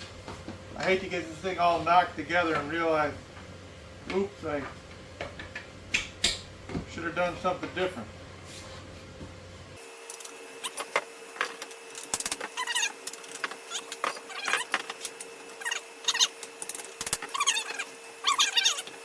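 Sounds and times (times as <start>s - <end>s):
plastic squeaking on plastic: 12.4s - 16.4s, 17.0s - 19.0s.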